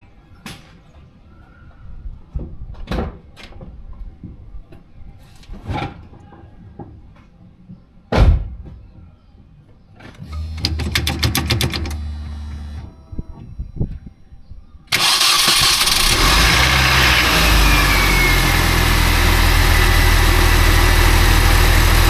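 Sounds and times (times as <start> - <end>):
fast even rattle: 14.9 - 22.0.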